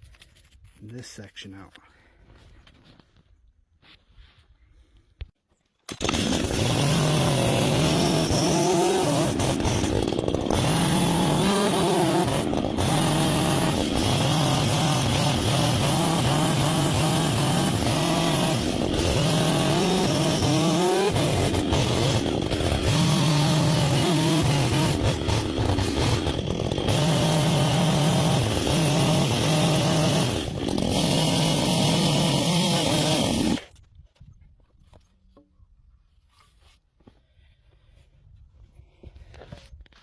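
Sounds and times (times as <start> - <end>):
chainsaw cutting into log: 5.9 - 33.8.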